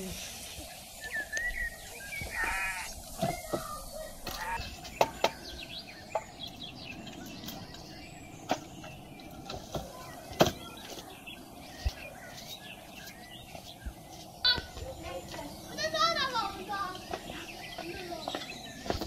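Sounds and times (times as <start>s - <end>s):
firewood logs clacking together: 3.1s - 11.1s.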